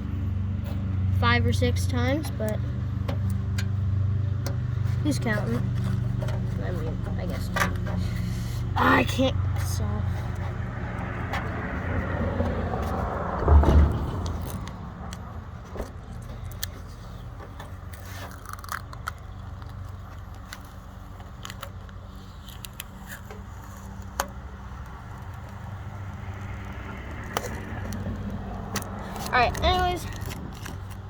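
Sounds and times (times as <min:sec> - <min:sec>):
loud low thump: 0:13.4 - 0:14.2.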